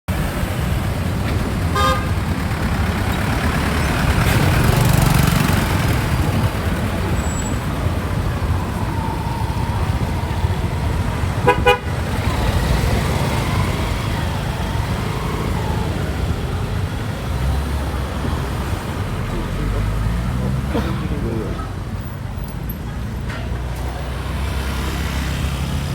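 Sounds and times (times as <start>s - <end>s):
street traffic engines: 0.0s - 25.9s
vehicle horn toots: 1.7s - 2.2s, 11.4s - 12.7s.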